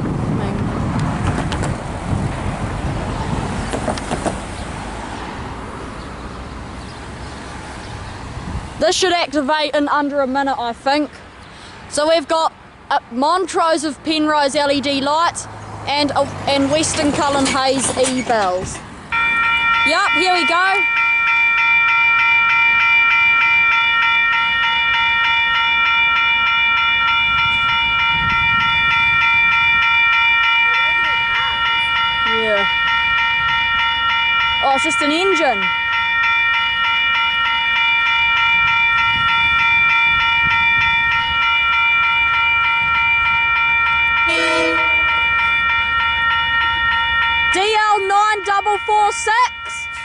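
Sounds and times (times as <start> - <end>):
road vehicle driving past: 0.8 - 8.8, 14.7 - 19.8, 20.8 - 47.6
level crossing bells ringing: 11.9 - 50.0.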